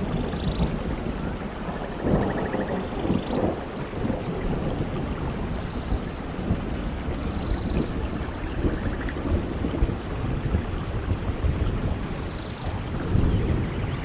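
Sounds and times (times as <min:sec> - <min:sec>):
low rolling thunder: 0:00.0 - 0:14.0
steady rain: 0:00.0 - 0:14.0.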